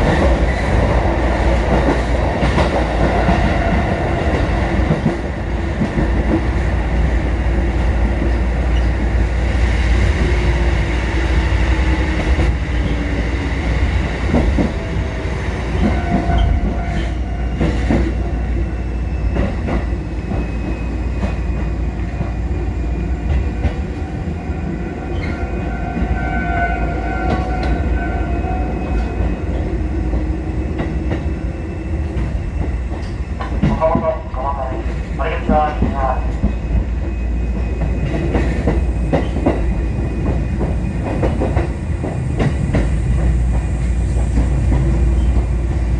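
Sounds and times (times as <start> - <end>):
train running gear whine: 0.0 - 33.9, 34.5 - 45.9
train wheels rumbling on rails: 0.0 - 45.9
clacks over rail joints: 37.6 - 45.8.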